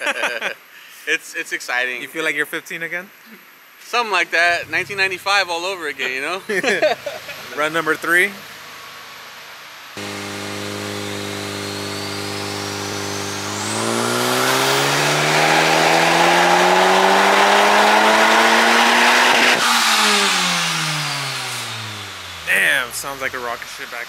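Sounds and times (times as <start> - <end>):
car engine revving under load: 4.6 - 5.7, 9.9 - 24.0.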